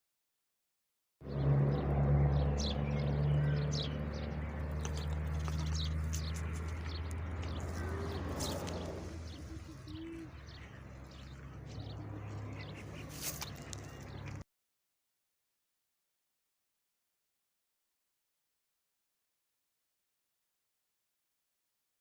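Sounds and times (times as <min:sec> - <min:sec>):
birds chirping: 0:01.2 - 0:14.4
low bird calls: 0:02.5 - 0:14.4.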